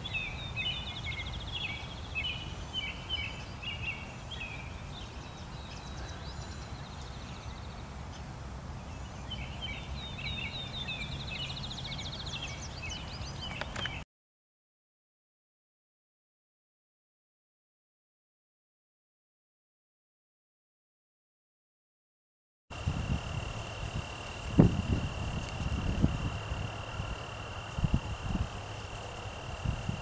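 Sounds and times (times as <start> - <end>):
songbirds chirping and trilling: 0.0 - 14.0, 22.8 - 30.0.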